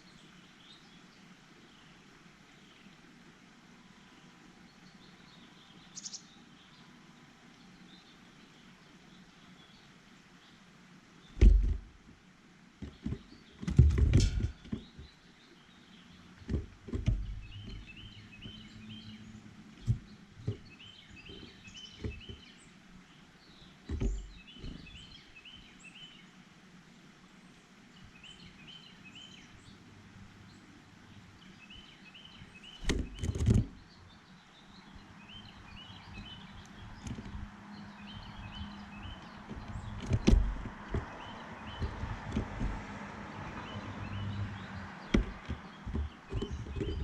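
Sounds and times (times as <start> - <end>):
small birds chirping: 0.0 - 47.0
sharp knocks and thumps: 11.4 - 12.0, 12.8 - 15.2, 16.4 - 18.7, 19.8 - 22.5, 23.8 - 25.0, 32.8 - 33.8, 36.2 - 47.0.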